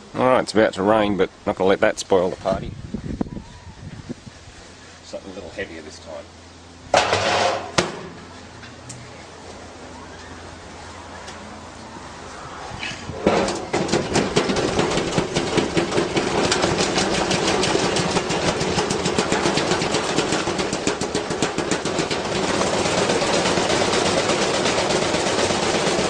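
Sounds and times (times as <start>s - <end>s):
object knocking against washer drum: 13.2s - 23.1s
washing machine hum: 13.2s - 26.0s.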